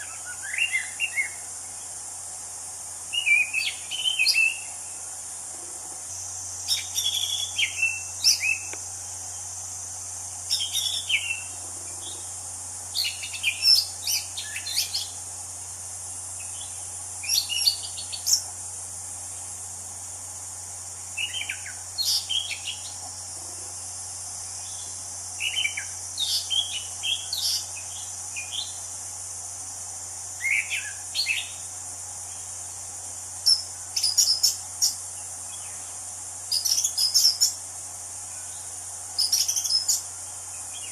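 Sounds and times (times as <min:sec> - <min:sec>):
thrush singing whistled notes: 0:00.0 - 0:01.4, 0:03.1 - 0:04.8, 0:06.7 - 0:08.8, 0:10.5 - 0:11.5, 0:12.9 - 0:15.2
high-pitched insect drone: 0:00.0 - 0:40.9.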